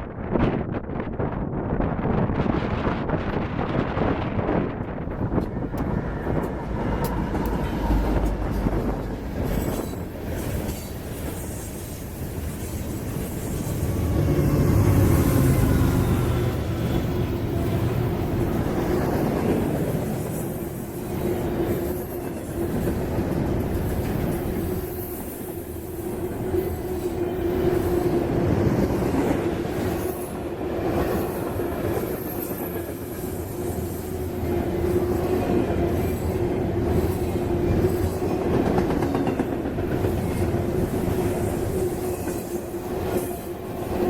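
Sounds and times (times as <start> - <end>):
freight train cars rolling on rails: 2.0 - 44.0.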